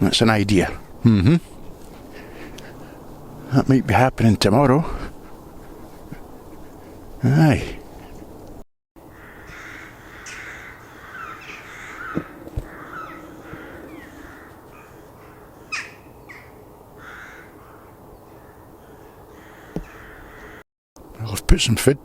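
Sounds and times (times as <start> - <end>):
crows calling: 0.6 - 3.6, 4.8 - 20.6
sharp knocks: 12.1 - 12.8.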